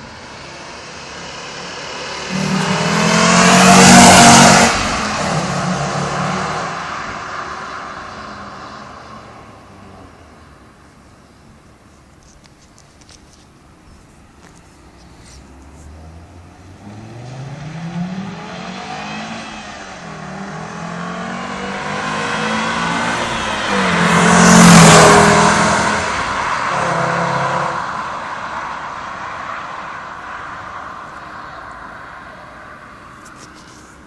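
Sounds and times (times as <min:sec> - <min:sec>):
car engine accelerating: 0:00.2 - 0:09.5, 0:15.5 - 0:31.3.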